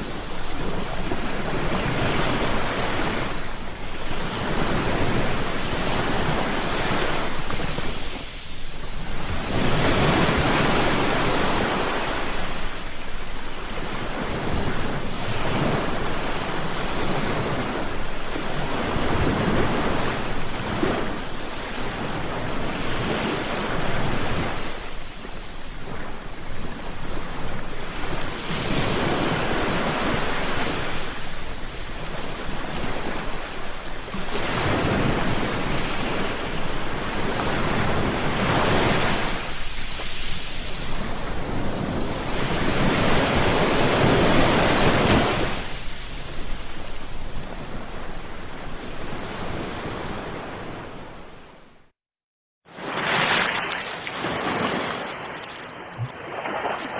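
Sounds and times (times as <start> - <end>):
ocean waves breaking on shore: 0.0 - 51.9, 52.7 - 56.9.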